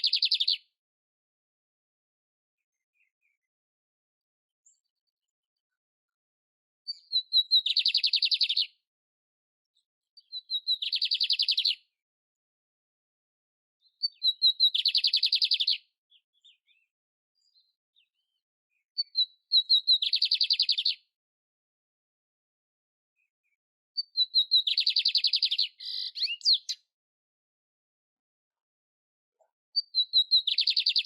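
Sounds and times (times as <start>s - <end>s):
canary singing: 0.0s - 0.6s, 6.9s - 8.7s, 10.2s - 11.8s, 13.8s - 16.8s, 19.0s - 21.0s, 24.0s - 26.9s, 29.8s - 31.0s.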